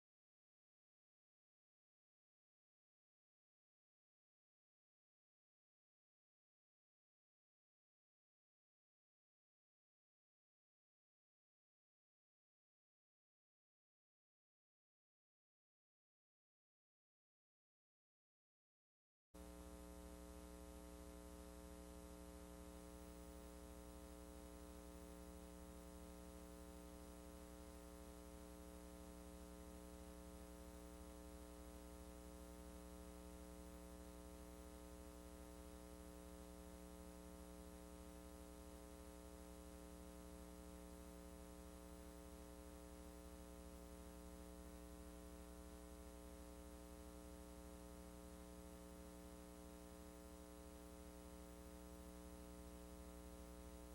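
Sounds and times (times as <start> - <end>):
faint mains hum with hiss: 19.4 - 53.9.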